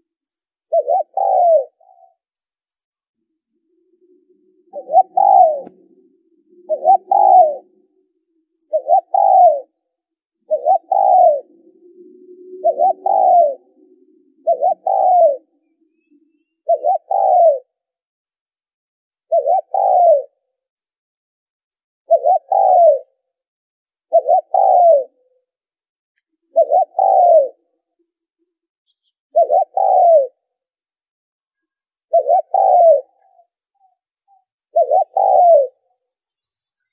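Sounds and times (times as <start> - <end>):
dove cooing: 0.7 - 2.1, 3.6 - 9.8, 10.4 - 17.8, 19.3 - 20.4, 22.1 - 23.2, 24.1 - 25.2, 26.5 - 27.7, 29.3 - 30.5, 32.1 - 33.4, 34.7 - 35.8.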